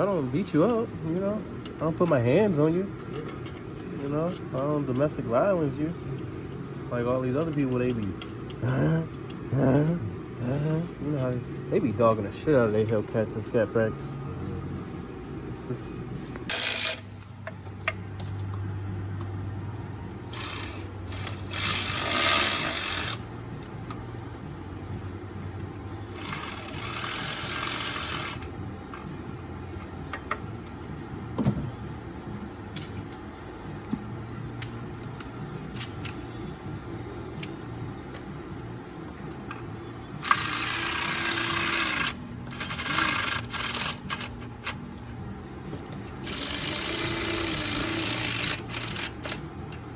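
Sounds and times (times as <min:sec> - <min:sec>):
power ratchet whirring: 0:16.4 - 0:17.3, 0:20.2 - 0:23.3, 0:26.0 - 0:28.5, 0:40.2 - 0:44.9, 0:46.2 - 0:49.5.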